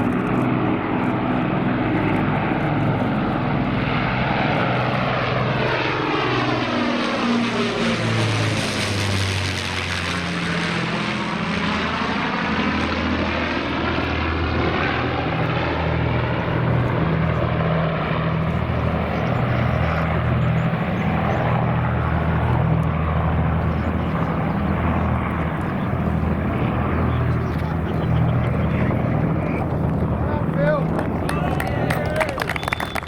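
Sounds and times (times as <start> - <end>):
aircraft engines droning: 0.0 - 33.0.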